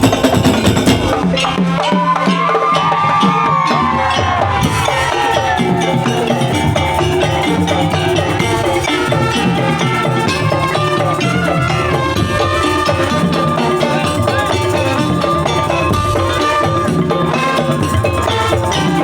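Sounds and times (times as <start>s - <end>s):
drums and wooden slit drums: 0.0s - 19.0s
high gliding melody: 4.6s - 19.0s.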